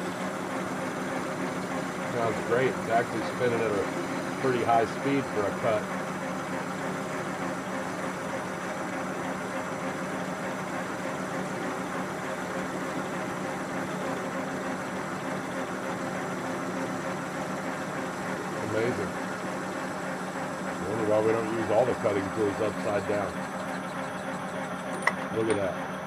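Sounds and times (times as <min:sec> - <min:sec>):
metal lathe cutting steel: 0:00.0 - 0:26.0.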